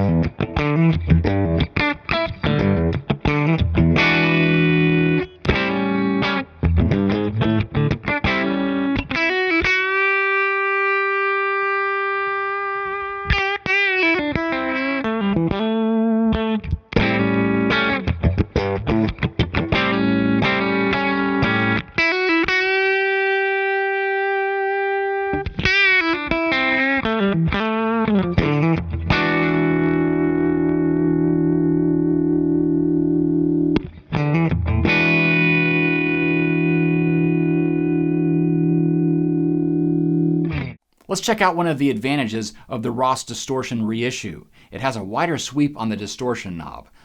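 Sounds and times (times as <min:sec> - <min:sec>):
electric guitar lead lines: 0:00.0 - 0:40.8.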